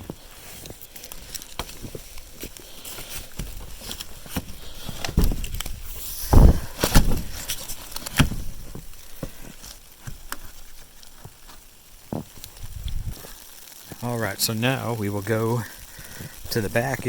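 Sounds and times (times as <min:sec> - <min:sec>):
crunching in snow: 0:00.0 - 0:17.0
dull thumps: 0:03.2 - 0:13.2.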